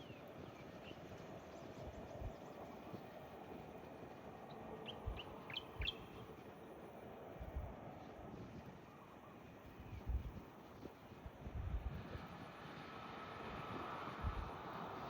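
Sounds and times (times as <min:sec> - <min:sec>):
faint outdoor hum: 0:00.0 - 0:15.0
small bird chirping: 0:04.9 - 0:06.2.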